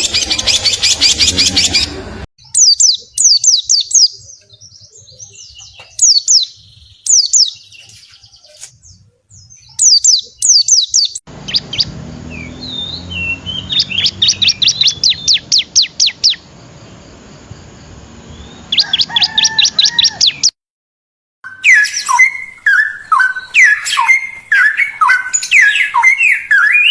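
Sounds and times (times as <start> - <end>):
songbird whistling: 9.4 - 16.4, 21.5 - 26.9.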